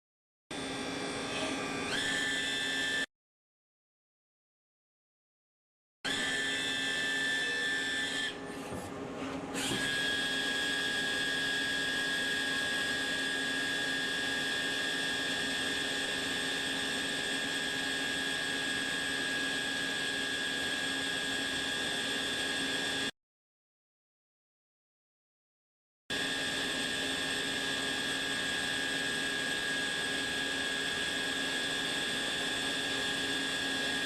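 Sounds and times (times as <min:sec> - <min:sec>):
lathe cutting metal whine: 0:09.6 - 0:23.0, 0:26.2 - 0:34.0.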